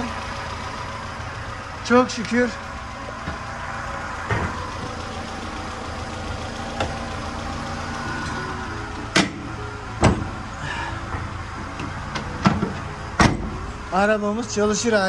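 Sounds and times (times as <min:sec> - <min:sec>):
car engine idling: 0:00.0 - 0:15.0
car bonnet knocking shut: 0:09.1 - 0:10.4, 0:11.2 - 0:13.6.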